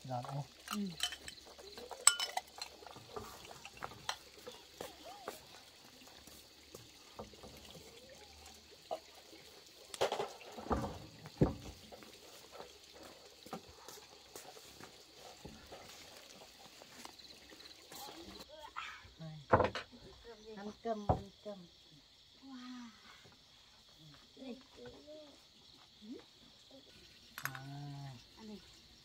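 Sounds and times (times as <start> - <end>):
dishes and utensils clinking: 0.5 - 4.6.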